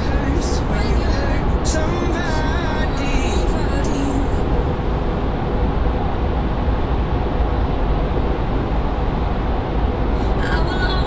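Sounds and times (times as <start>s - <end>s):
tyre and wind rumble in car cabin: 0.0s - 11.0s.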